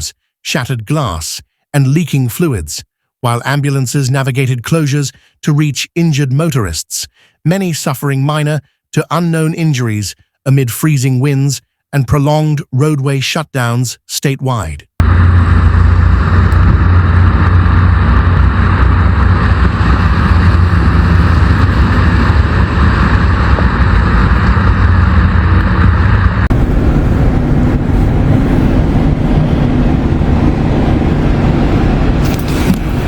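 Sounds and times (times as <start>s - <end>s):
road vehicle driving: 15.0s - 33.0s.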